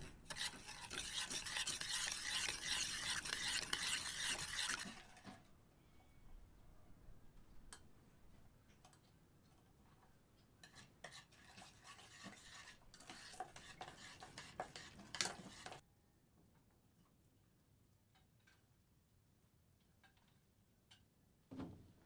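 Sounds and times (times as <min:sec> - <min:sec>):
utensil scraping in a pot: 0:00.0 - 0:05.3, 0:10.6 - 0:15.8.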